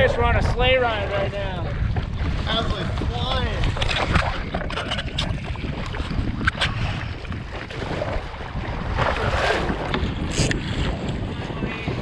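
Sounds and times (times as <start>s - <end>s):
water rushing against kayak hull: 0.0s - 12.0s
wind buffeting microphone: 0.0s - 12.0s
sharp splashes and knocks: 1.9s - 11.1s.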